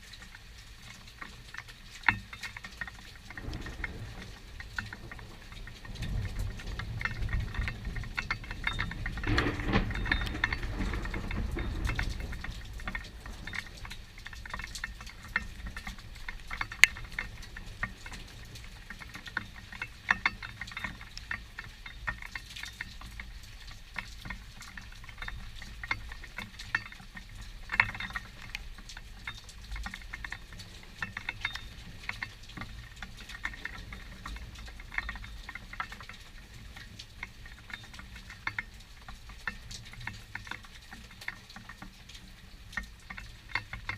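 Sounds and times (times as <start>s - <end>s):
rain pattering: 0.0s - 43.9s
low rumble of thunder: 3.2s - 19.0s.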